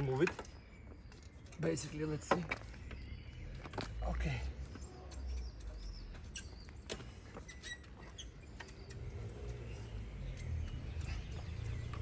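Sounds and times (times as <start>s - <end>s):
metal squeaking on metal: 4.8s - 10.7s.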